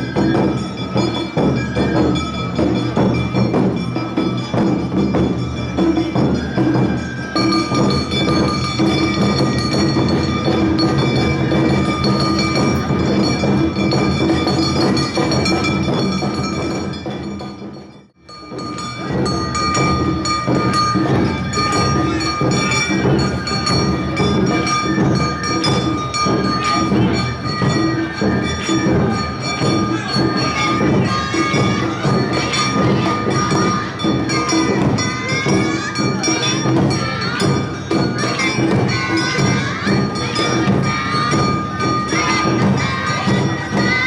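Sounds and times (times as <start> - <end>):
bell-like ringing tones: 0.0 - 44.0
street band drums: 0.0 - 44.0.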